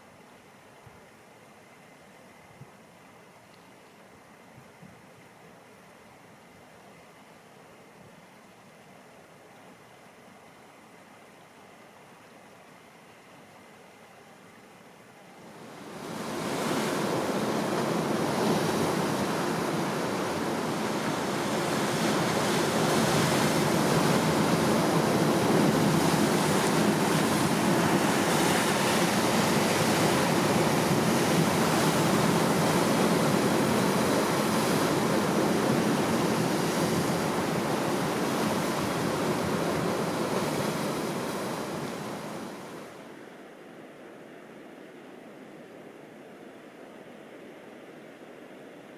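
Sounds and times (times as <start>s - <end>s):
water rushing: 8.6s - 46.2s.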